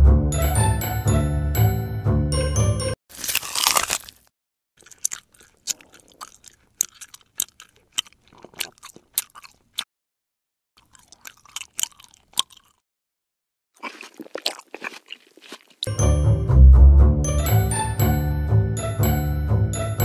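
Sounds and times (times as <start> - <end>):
crunchy chewing: 3.1 - 9.9, 10.8 - 12.8, 13.8 - 15.9.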